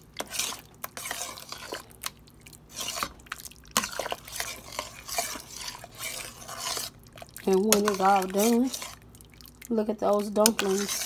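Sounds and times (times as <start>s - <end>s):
spoon stirring thick stew: 0.0s - 11.0s.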